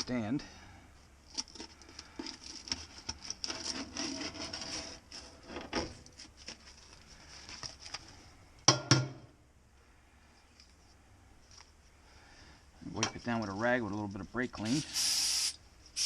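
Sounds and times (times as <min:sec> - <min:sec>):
scraping on metal: 0:02.2 - 0:05.8.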